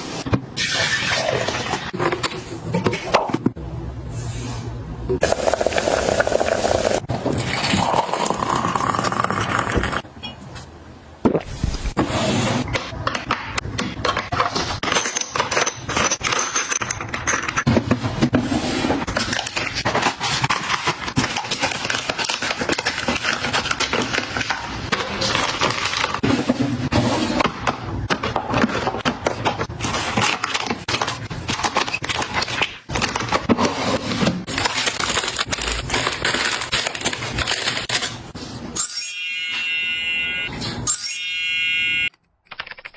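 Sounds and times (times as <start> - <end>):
household items handled: 11.4 - 38.7.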